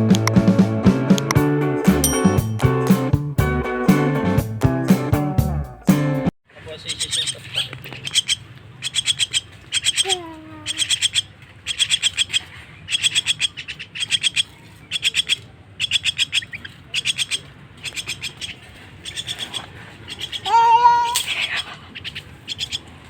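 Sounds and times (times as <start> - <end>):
bird chick calling harsh chips: 6.7 - 22.8.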